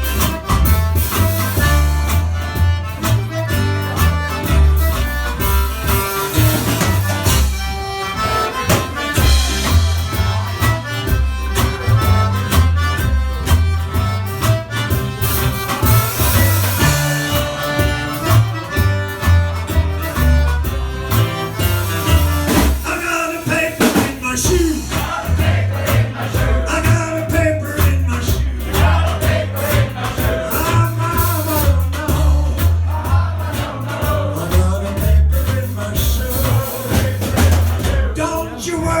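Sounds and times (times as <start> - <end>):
pulsing bass beat: 0.0 - 23.0, 24.3 - 39.0
reedy lead instrument: 0.0 - 23.9
cajun band playing: 0.0 - 39.0.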